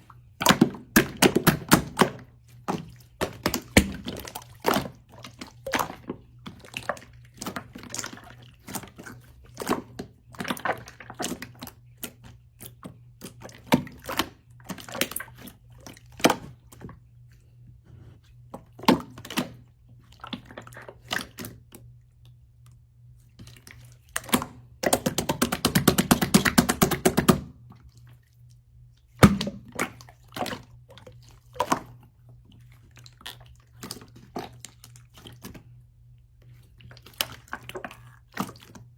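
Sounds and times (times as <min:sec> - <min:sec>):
slime squishing with wet clicks: 0:00.0 - 0:38.9.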